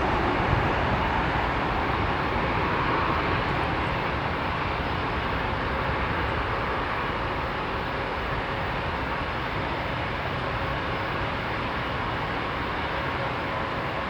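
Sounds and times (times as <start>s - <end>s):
jet engine rumble: 0.0s - 7.1s.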